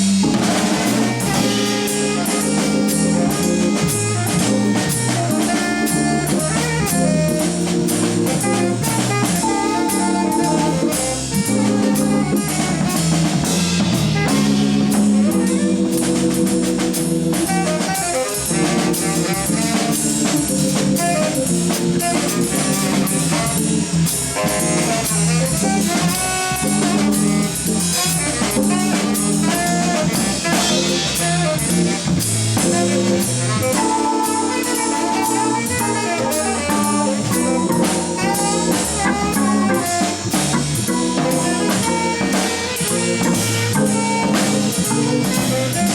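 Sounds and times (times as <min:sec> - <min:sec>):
drum kit with cymbals: 0:00.0 - 0:45.9
organ: 0:00.0 - 0:45.9
tenor saxophone: 0:00.0 - 0:45.9.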